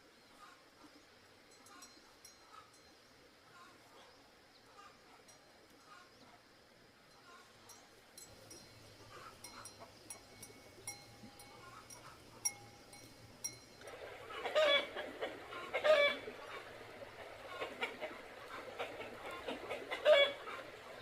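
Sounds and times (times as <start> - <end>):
chickens clucking: 9.0 - 21.0
loud chicken calls: 13.9 - 21.0.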